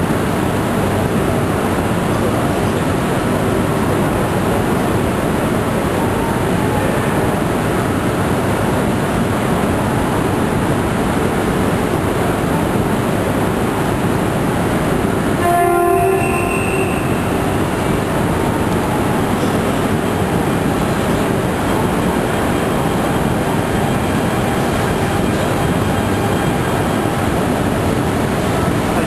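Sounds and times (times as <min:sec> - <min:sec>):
train running noise: 0:00.0 - 0:29.0
train horn blast: 0:15.4 - 0:18.6.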